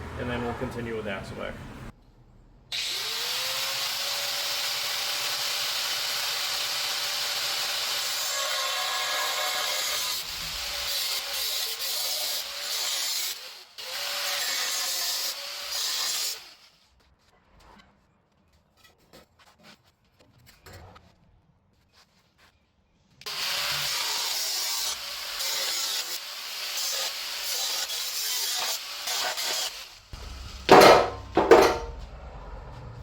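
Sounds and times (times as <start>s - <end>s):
power tool cutting metal pipe: 2.7s - 16.6s, 23.2s - 30.0s, 30.7s - 31.9s.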